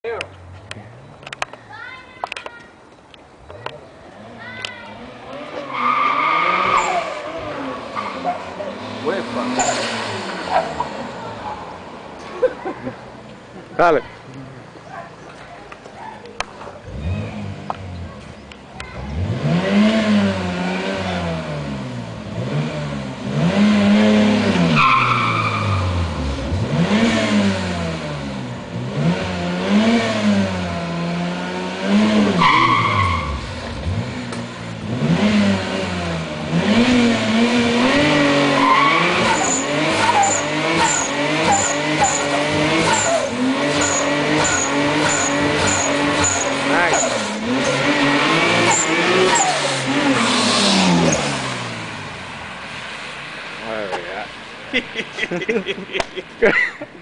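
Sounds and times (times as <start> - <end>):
car engine revving: 3.6 - 12.5, 16.4 - 56.4.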